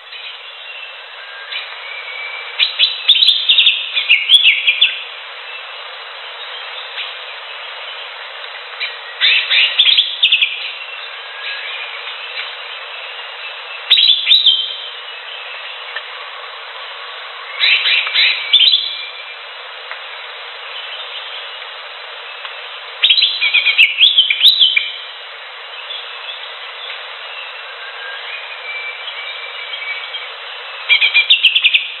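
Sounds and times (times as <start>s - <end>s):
steady background hiss: 0.0s - 32.0s
bird singing rapid high chirps: 0.1s - 5.7s, 8.8s - 16.0s, 23.0s - 25.1s, 25.7s - 32.0s.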